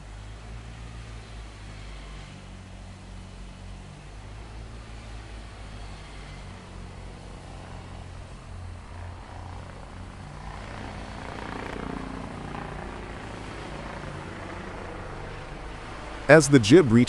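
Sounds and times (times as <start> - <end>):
crane engine humming: 1.0 - 17.0
machinery noise: 5.6 - 17.0.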